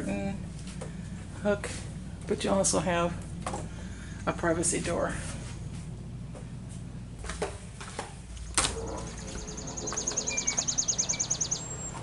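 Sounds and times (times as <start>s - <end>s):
songbird trill: 8.6s - 12.0s.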